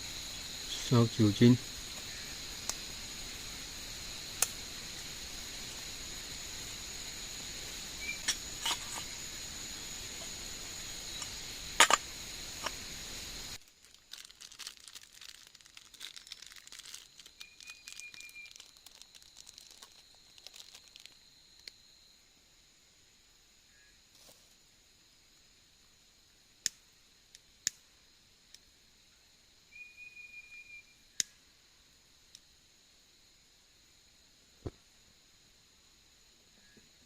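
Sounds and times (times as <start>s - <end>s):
insects buzzing: 0.0s - 37.0s
faint crackling and crinkling: 13.5s - 21.8s.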